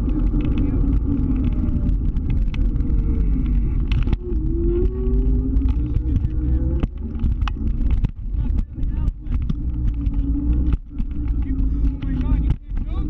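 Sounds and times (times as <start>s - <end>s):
scooter motor: 0.0s - 13.0s
wind and road rumble: 0.0s - 13.0s.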